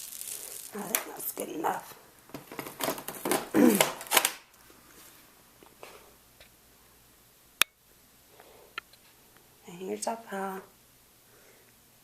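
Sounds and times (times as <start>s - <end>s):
dry rustling and scraping: 0.0s - 1.4s.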